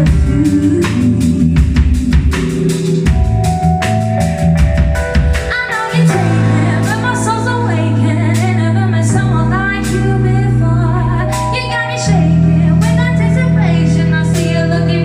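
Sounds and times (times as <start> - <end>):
woman singing: 0.0 - 2.5, 5.4 - 15.0
drum hits: 0.0 - 8.7
guitar: 0.0 - 15.0
held bass notes: 0.0 - 15.0.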